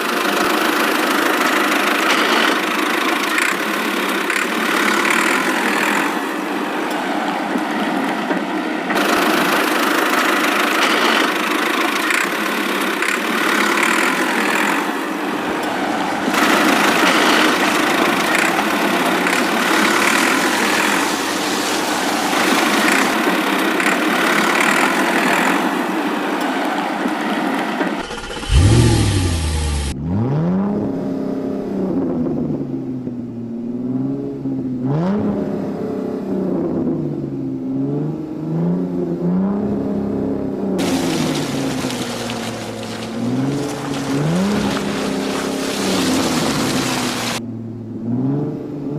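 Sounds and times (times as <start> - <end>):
vehicle engine drone and revving: 0.0 - 48.9.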